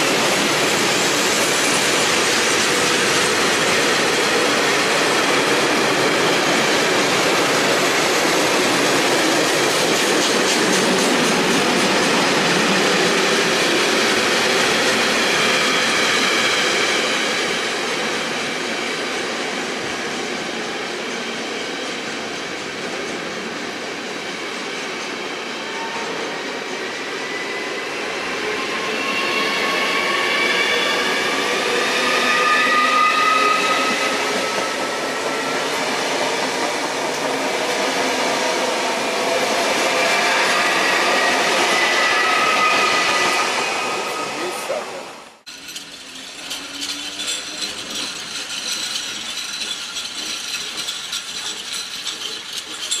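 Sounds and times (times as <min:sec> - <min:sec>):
electric train whine: 0:00.0 - 0:53.0
freight wheels clattering over rail joints: 0:45.5 - 0:53.0.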